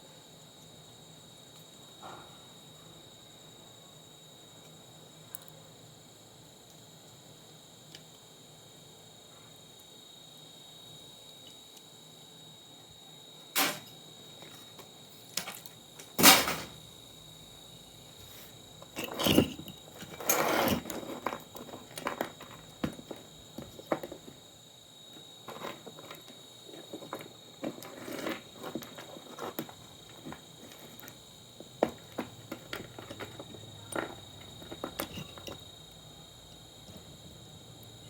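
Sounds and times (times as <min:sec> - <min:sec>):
rustling scrapes: 0:18.2 - 0:22.7, 0:27.7 - 0:31.0
objects being handled: 0:18.2 - 0:24.4, 0:25.5 - 0:35.7.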